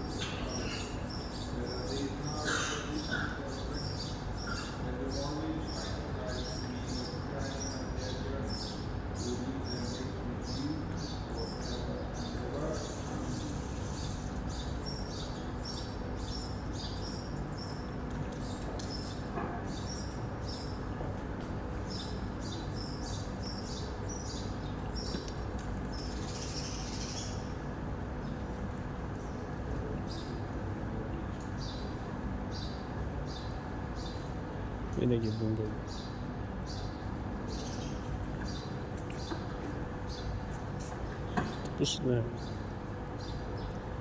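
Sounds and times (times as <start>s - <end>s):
faint murmuring voices: 0.2s - 14.8s
small bird chirping: 21.9s - 27.6s.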